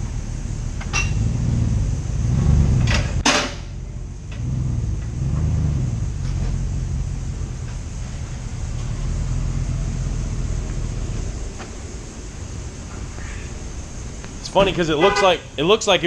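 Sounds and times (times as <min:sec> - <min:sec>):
pickup truck engine rumble: 0:00.0 - 0:16.0.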